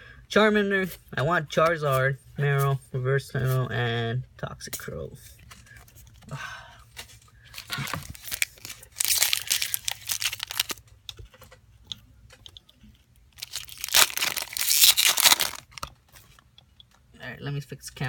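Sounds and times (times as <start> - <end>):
foil wrapper tearing and crinkling: 7.6 - 10.8, 13.4 - 15.8.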